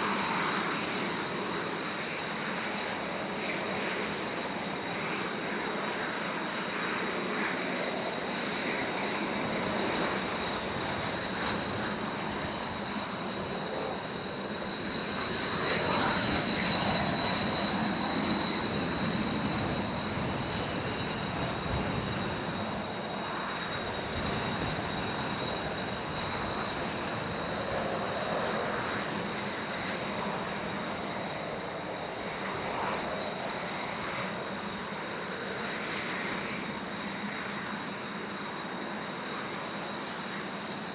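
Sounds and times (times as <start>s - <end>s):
jet engines whining: 0.0s - 40.9s
wind noise on microphone: 15.3s - 22.9s, 23.7s - 28.0s.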